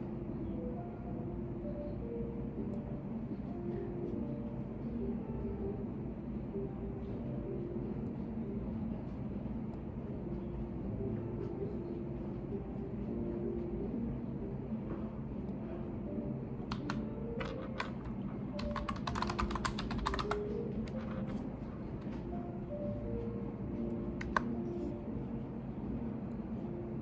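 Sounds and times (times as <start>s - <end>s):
low background hum: 0.0s - 27.0s
typing on computer keyboard: 16.7s - 21.4s, 24.2s - 24.5s.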